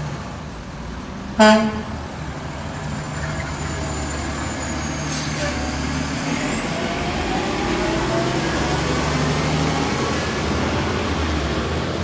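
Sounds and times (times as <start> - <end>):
garbage truck engine running: 1.5 - 12.0.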